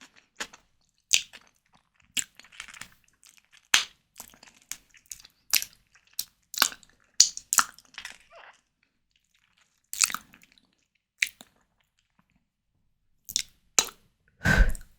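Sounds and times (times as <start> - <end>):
mouth chewing wet clicks: 0.4 - 7.7, 9.5 - 10.5, 13.3 - 14.8.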